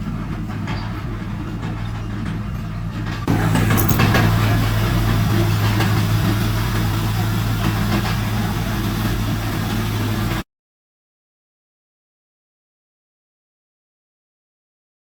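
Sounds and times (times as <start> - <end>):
diesel engine clattering: 0.0 - 10.4.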